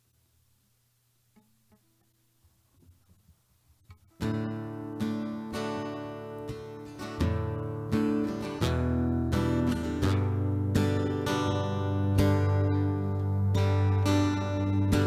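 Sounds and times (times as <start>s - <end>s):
acoustic guitar strumming chords: 4.2s - 15.0s.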